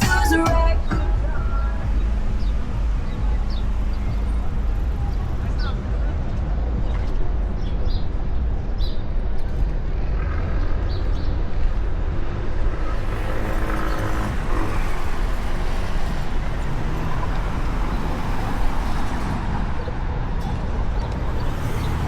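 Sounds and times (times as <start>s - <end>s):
street traffic: 0.0s - 22.0s.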